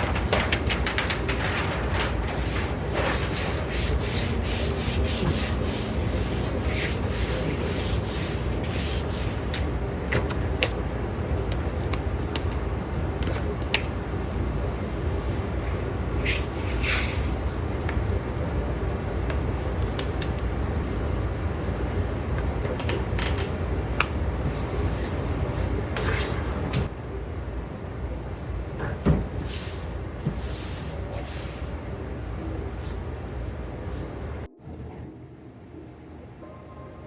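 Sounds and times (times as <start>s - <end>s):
rubbing and scraping: 0.0s - 9.5s.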